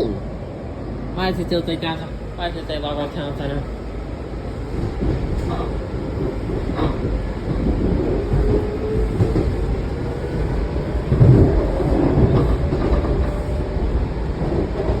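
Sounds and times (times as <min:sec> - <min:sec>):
train wheels rumbling on rails: 0:01.2 - 0:15.0.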